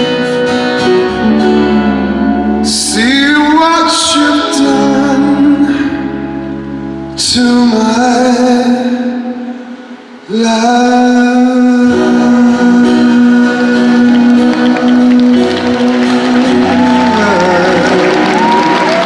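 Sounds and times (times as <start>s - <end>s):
live band playing a ballad: 0.0s - 19.0s
man singing a long note: 1.2s - 6.2s, 10.2s - 18.9s.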